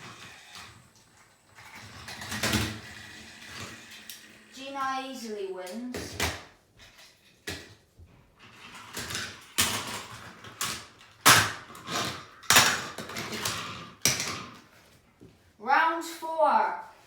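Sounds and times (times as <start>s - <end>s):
toy train pieces clattering: 1.6s - 4.8s, 8.5s - 14.6s.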